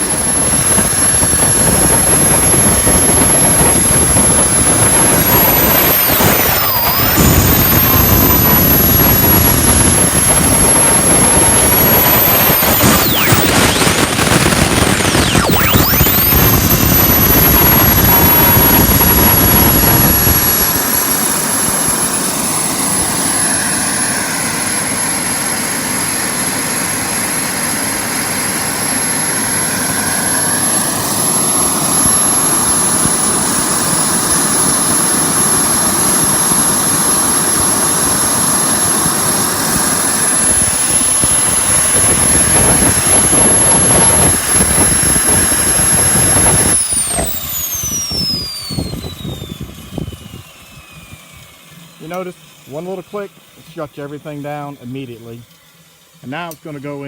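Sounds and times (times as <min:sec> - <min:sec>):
turbine whine: 0:00.0 - 0:57.0
deep rumble: 0:00.1 - 0:21.1.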